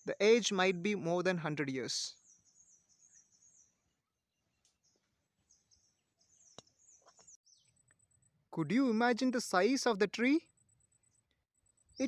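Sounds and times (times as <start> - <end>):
faint bird chirps: 2.1 - 8.8, 10.4 - 12.0.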